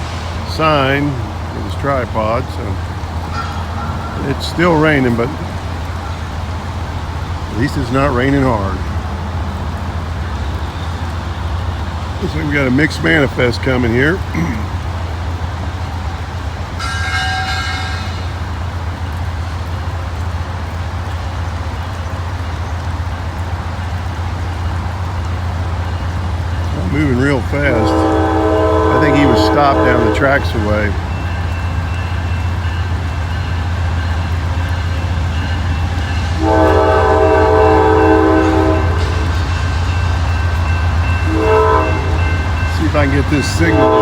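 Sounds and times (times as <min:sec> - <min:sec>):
diesel locomotives rumbling: 0:00.0 - 0:44.0
train horn blast: 0:03.3 - 0:05.4, 0:16.8 - 0:18.4, 0:27.0 - 0:32.8, 0:34.7 - 0:44.0.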